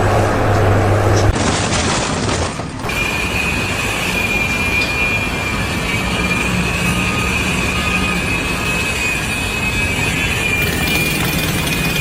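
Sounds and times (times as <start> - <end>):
continuous rumbling noise: 0.0 - 12.0
high-pitched squeal: 2.8 - 12.0.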